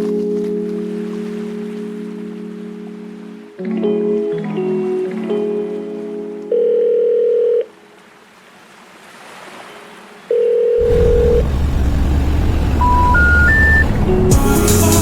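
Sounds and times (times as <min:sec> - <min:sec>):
long electronic beeps: 0:10.8 - 0:11.5, 0:12.5 - 0:14.0
loud low rumble: 0:10.8 - 0:14.4
rising three-tone chime: 0:12.8 - 0:13.9.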